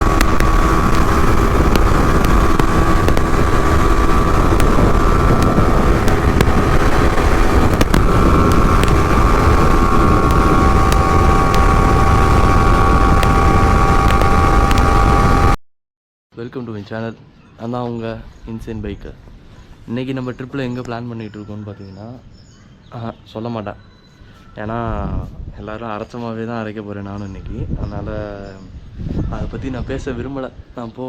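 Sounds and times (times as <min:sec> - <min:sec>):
motorcycle running: 0:00.0 - 0:15.6
wind on microphone: 0:00.0 - 0:15.6, 0:24.5 - 0:25.9, 0:27.1 - 0:30.8.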